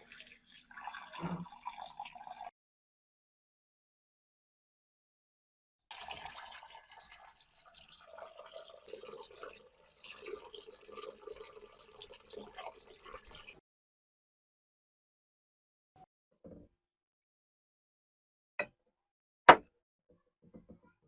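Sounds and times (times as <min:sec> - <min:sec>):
water trickling and dripping: 0:00.0 - 0:02.5, 0:05.9 - 0:13.6.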